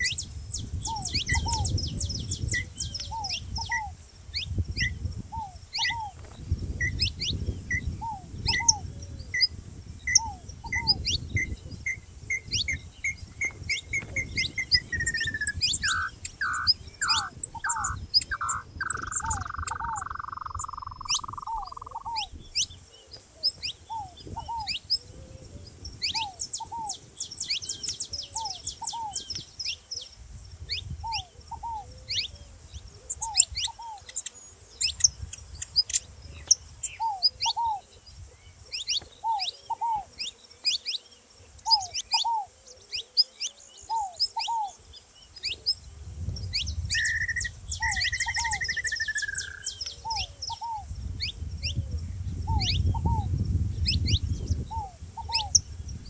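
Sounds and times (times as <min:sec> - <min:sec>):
dove two-note calls: 0:00.0 - 0:09.5, 0:10.1 - 0:25.4, 0:26.0 - 0:29.4, 0:36.3 - 0:44.9, 0:46.9 - 0:51.8, 0:53.9 - 0:55.7
finches calling with sharp chips: 0:00.0 - 0:25.1, 0:30.7 - 0:56.0.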